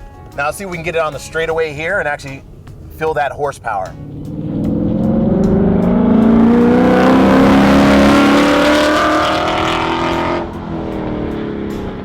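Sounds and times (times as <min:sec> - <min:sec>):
car engine accelerating hard: 0:03.8 - 0:12.0.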